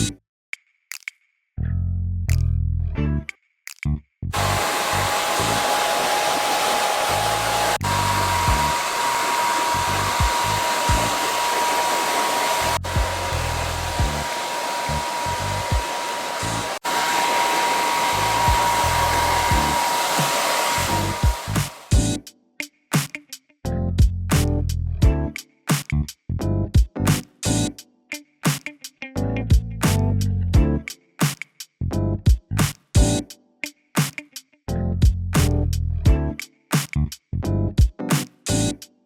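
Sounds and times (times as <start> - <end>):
background music with bass line: 0.0 - 0.2, 2.0 - 4.5, 12.8 - 14.2, 21.2 - 22.3, 23.7 - 27.8, 29.1 - 30.9, 31.8 - 33.3, 34.7 - 38.8
hair dryer blowing: 4.4 - 22.0.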